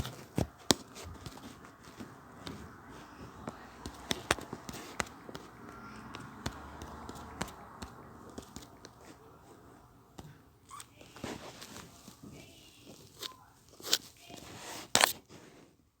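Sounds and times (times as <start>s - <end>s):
objects handled clicking and rustling: 0.0s - 5.5s, 10.1s - 15.3s
faint voices: 0.0s - 14.9s.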